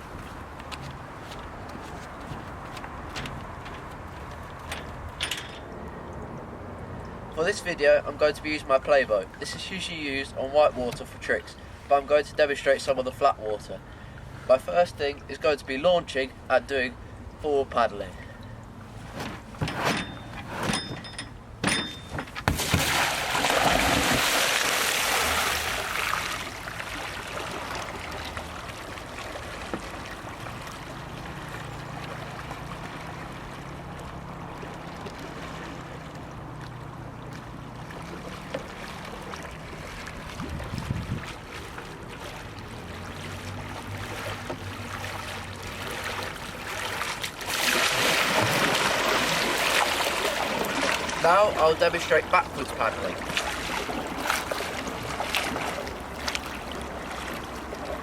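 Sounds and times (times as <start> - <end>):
sharp knocks: 19.2 - 23.0
rush of water: 21.0 - 58.0
paddle splashing water: 22.1 - 58.0.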